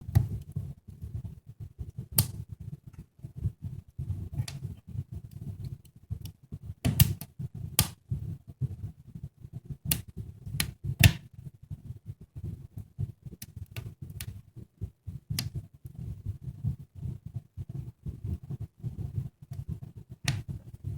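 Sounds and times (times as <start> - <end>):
wood fire snapping and popping: 0.0 - 1.0, 1.9 - 3.0, 4.3 - 8.0, 9.8 - 11.4, 12.7 - 14.4, 15.3 - 16.1, 19.5 - 20.9.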